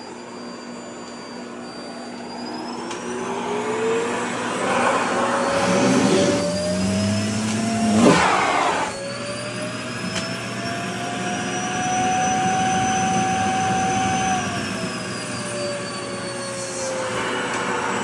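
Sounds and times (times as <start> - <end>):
vacuum cleaner motor whine: 0.0 - 18.0
loud rush of air: 3.4 - 9.0.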